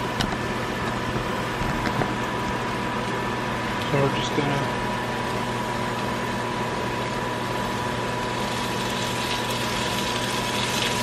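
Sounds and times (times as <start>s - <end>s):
mechanical hum: 0.0s - 11.0s
vegetables sizzling in a pan: 5.2s - 11.0s.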